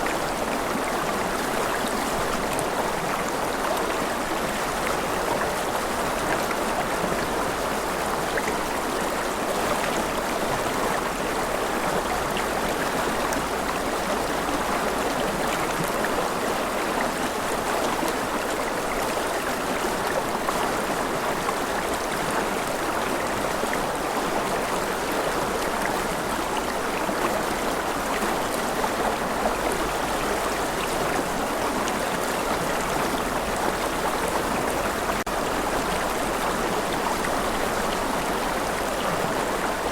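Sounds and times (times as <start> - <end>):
steady rain: 31.5 - 39.9.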